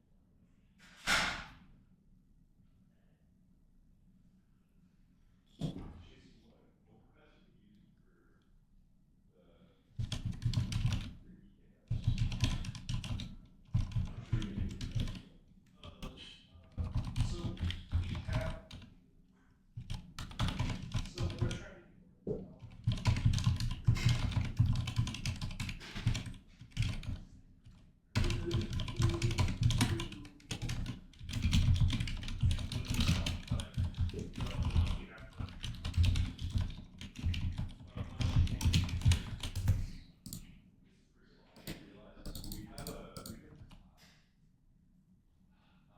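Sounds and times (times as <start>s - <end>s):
typing on keyboard: 10.0s - 11.2s, 11.9s - 15.2s, 15.8s - 18.9s, 19.8s - 21.6s, 22.6s - 40.5s, 41.6s - 43.8s.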